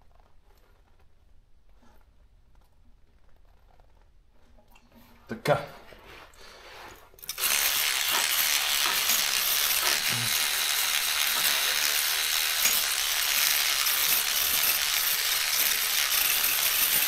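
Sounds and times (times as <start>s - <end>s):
electric brush scrubbing: 7.3s - 17.0s.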